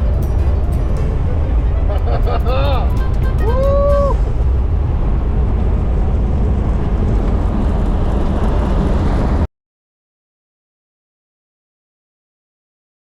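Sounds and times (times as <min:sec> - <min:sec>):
vehicle engine and road noise: 0:00.0 - 0:09.5.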